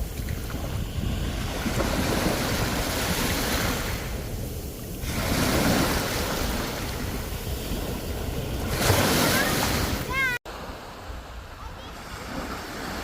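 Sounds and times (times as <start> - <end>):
sea waves breaking on shore: 0.0 - 13.0.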